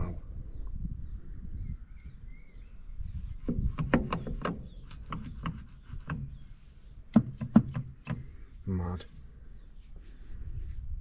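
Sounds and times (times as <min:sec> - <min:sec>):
sharp knocks and clicks: 0:03.4 - 0:06.4, 0:07.1 - 0:08.4.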